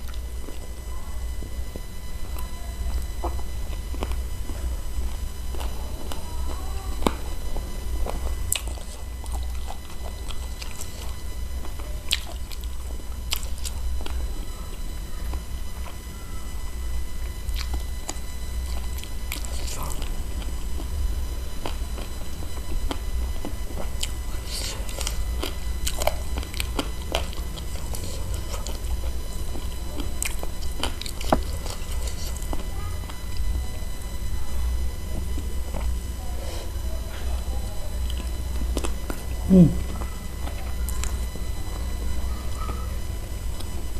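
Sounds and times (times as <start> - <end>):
low hum: 0.0 - 43.9
wet chewing and sucking: 1.7 - 14.5, 17.3 - 33.5.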